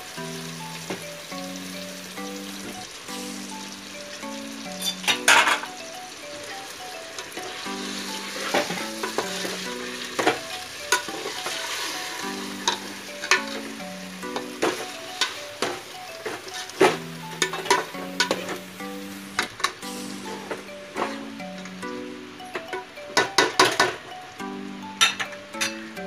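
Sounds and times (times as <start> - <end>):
chicken sizzling in oil: 0.0 - 19.3.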